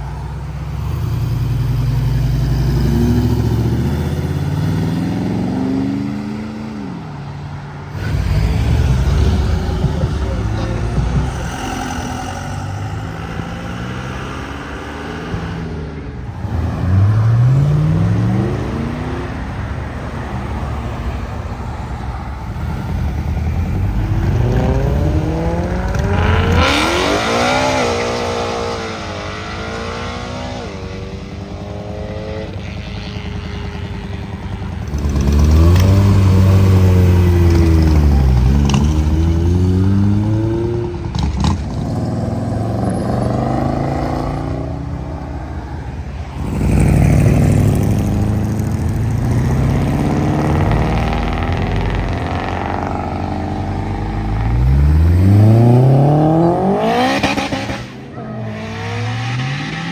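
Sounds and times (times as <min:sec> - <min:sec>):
cars accelerating and shifting gears: 0:00.0 - 0:59.9.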